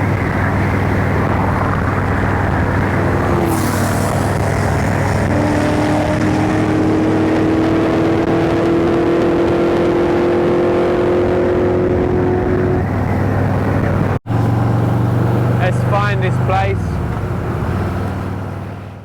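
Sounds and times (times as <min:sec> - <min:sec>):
wind rush: 0:00.0 - 0:18.8
motorcycle engine running: 0:10.2 - 0:19.0.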